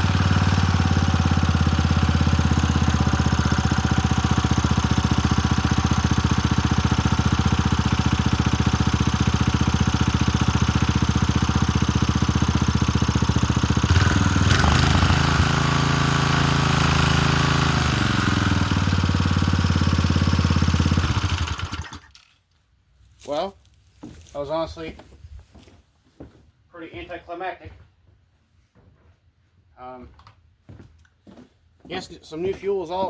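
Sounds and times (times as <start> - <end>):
small engine running: 0.0 - 22.2.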